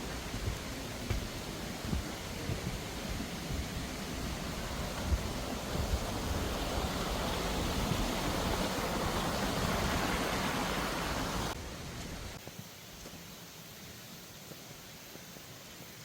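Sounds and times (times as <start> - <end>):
mountain stream rushing: 0.0 - 12.4.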